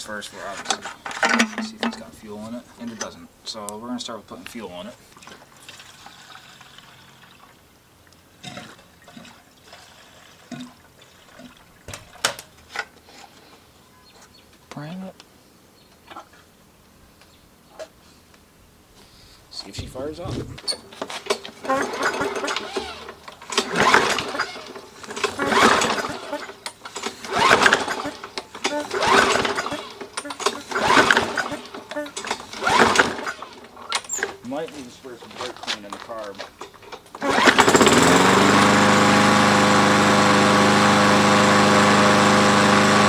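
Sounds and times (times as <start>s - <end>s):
recoil starter pulled: 0.0s - 3.2s, 19.8s - 43.0s
engine turning over: 19.8s - 43.0s.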